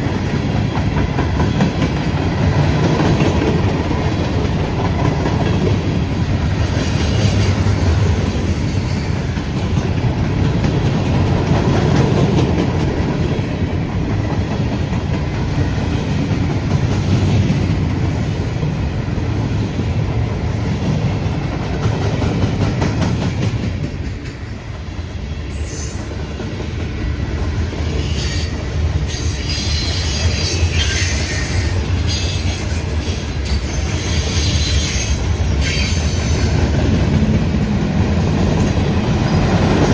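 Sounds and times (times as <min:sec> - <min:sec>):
train wheels rumbling on rails: 0:00.0 - 0:39.9
high-pitched wheel squeals: 0:25.5 - 0:26.2, 0:27.9 - 0:36.6.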